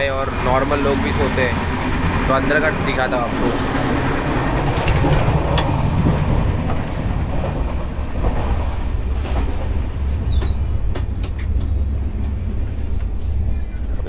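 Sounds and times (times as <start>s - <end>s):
train wheels rumbling on track: 0.0s - 14.0s
sharp clicks and knocks: 4.6s - 8.5s, 10.4s - 13.2s.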